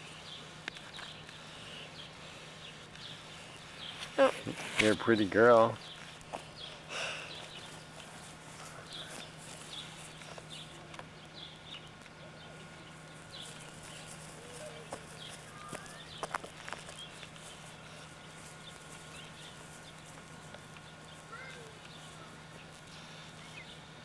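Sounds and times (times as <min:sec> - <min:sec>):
steady low hum: 0:00.0 - 0:24.0
birds chirping and calling: 0:05.7 - 0:23.9.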